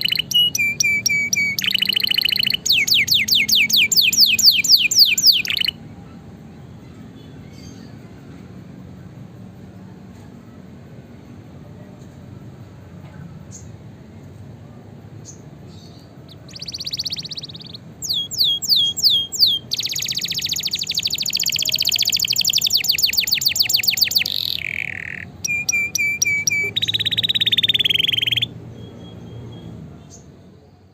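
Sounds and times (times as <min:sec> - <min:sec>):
canary singing: 0:00.0 - 0:05.8, 0:15.2 - 0:30.4.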